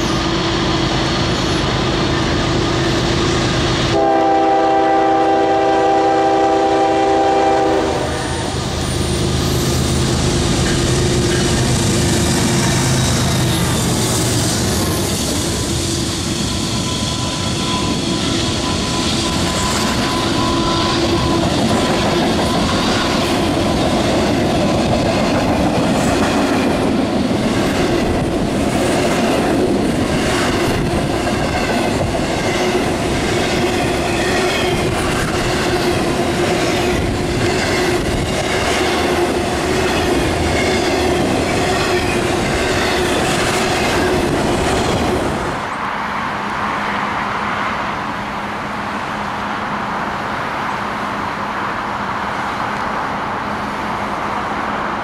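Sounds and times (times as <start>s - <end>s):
diesel locomotive passing: 0.0s - 55.0s
steady wheel squeal: 13.1s - 21.8s.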